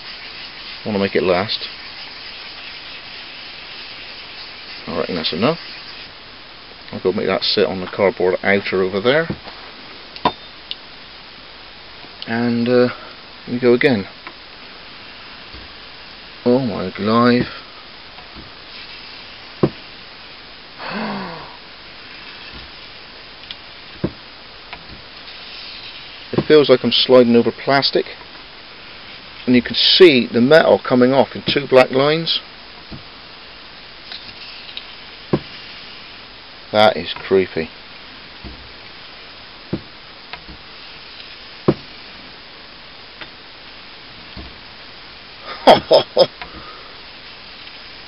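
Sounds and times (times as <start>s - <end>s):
blade hissing on whetstone: 0.0s - 6.1s, 18.4s - 19.9s, 24.8s - 26.6s
short knocks: 19.6s - 19.9s, 39.7s - 40.6s.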